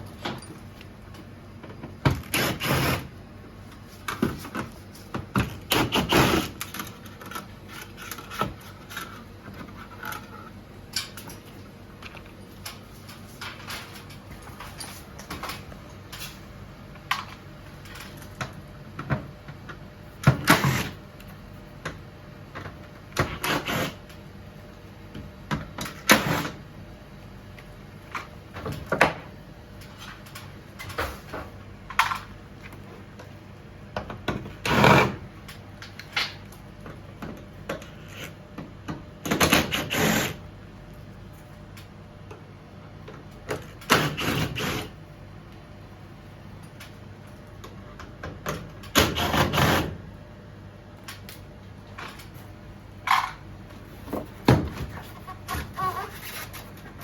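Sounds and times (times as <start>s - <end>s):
hard parts knocking and clattering: 53.0s - 53.5s.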